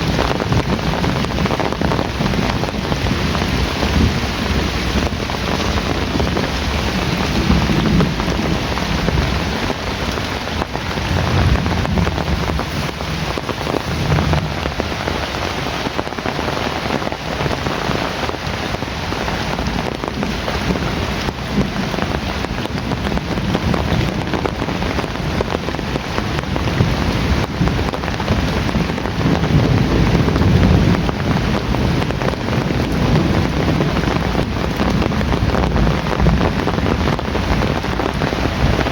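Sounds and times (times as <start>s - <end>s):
distant thunder: 0.0s - 18.1s, 18.7s - 38.9s
heavy rain: 0.0s - 38.9s.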